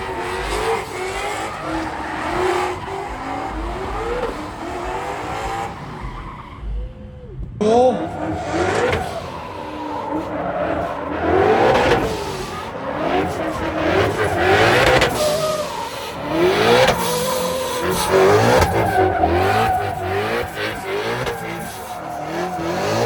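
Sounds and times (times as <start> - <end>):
car engines revving: 0.0 - 23.0
tyres squealing on pavement: 0.0 - 23.0.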